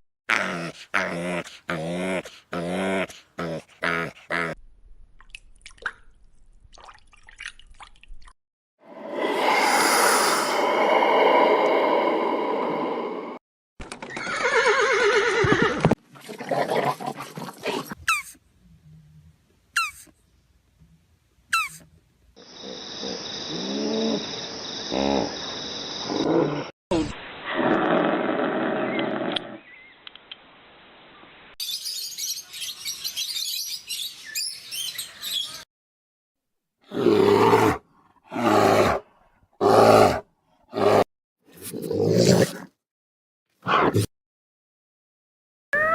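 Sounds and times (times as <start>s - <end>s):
horse whinnying: 14.1s - 16.0s.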